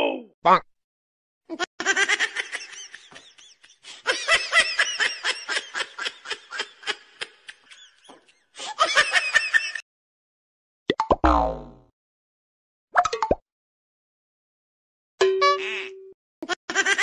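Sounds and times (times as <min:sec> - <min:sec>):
high-pitched laughter: 0:01.5 - 0:09.8, 0:15.6 - 0:17.0.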